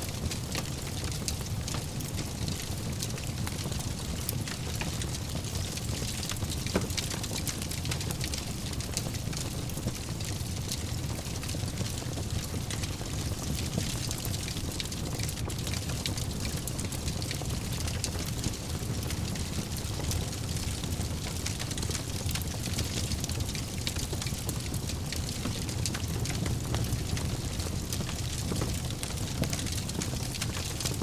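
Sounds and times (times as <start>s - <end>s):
fire crackling and popping: 0.0s - 31.0s.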